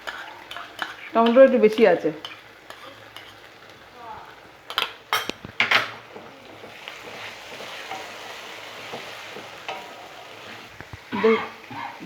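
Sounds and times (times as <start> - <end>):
spatula scraping a pan: 0.0 - 3.8, 6.0 - 12.0
masala sizzling in a pan: 0.0 - 12.0.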